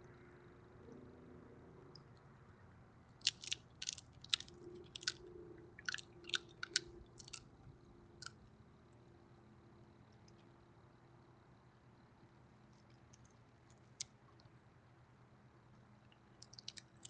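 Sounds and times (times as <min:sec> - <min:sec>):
peanut shells crunching: 0:03.2 - 0:05.2, 0:05.8 - 0:07.5, 0:16.4 - 0:17.0.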